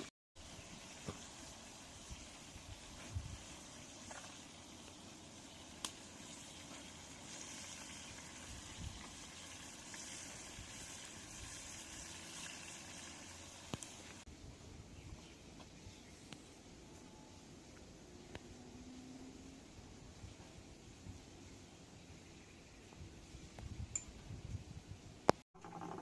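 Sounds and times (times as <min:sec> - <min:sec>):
food cooking bubbling hiss: 0:00.0 - 0:14.3.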